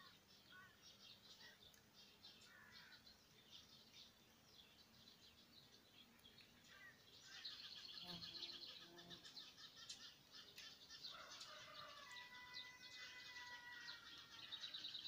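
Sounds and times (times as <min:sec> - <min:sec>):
birds chirping and trilling: 0:00.0 - 0:15.0.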